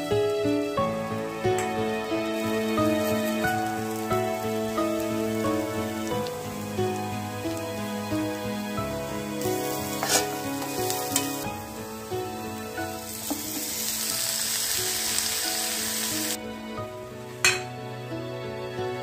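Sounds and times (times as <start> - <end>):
onions frying in oil: 0.0 - 16.4
steel spatula knocking on pan: 17.4 - 17.7.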